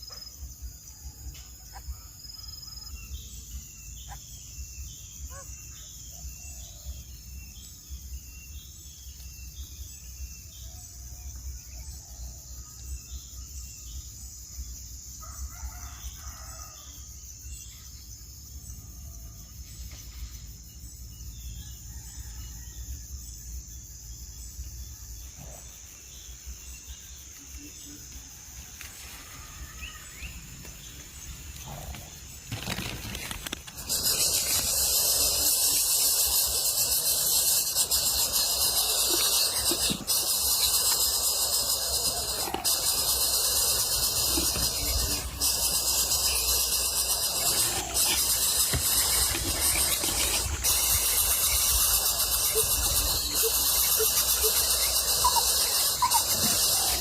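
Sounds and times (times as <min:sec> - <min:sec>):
bird chirps: 0:32.6 - 0:57.0.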